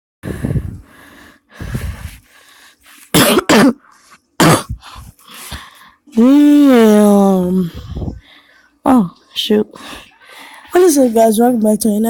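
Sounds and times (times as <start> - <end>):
person coughing: 3.2 - 4.8.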